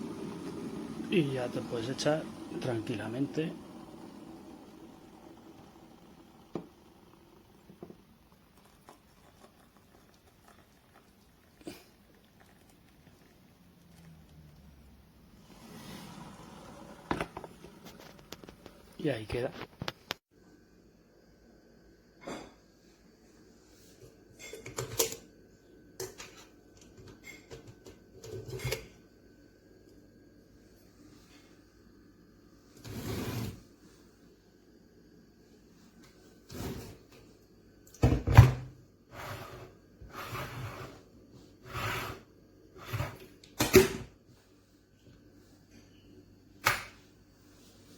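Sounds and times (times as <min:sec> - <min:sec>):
kettle water noise: 0:00.0 - 0:20.2, 0:35.7 - 0:45.6.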